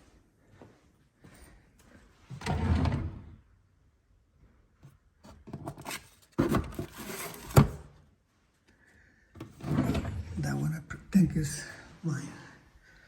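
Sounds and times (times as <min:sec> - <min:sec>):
drawer sliding: 0:02.4 - 0:03.4, 0:05.5 - 0:07.9, 0:09.4 - 0:10.6.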